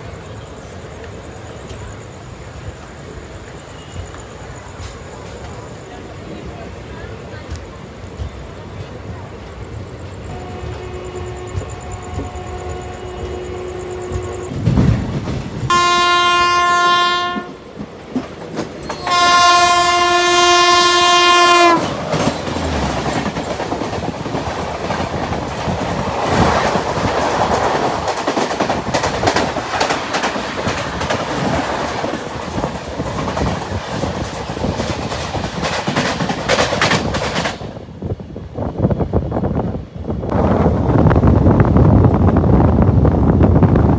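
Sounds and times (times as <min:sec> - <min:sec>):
train wheels clattering: 0:07.4 - 0:38.0
train horn blasts: 0:10.2 - 0:14.6, 0:15.7 - 0:17.6, 0:18.9 - 0:22.0.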